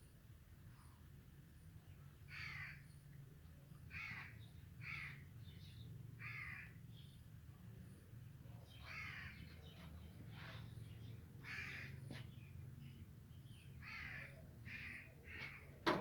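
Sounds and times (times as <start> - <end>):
bird cawing: 6.2 - 6.8, 11.4 - 12.2, 13.8 - 15.7.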